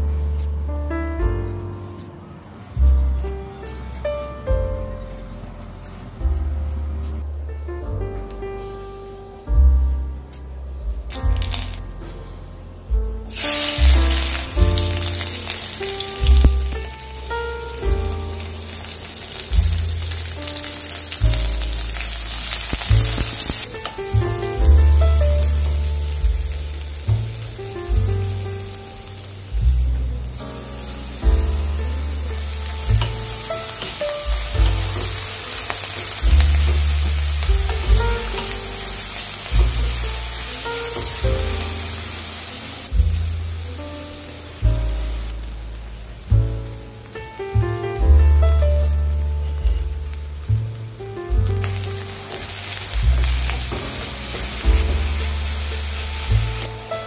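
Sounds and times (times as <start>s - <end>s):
background music with bass line: 0.0s - 57.0s
garlic and onions sizzling in oil: 11.1s - 11.9s, 13.2s - 57.0s.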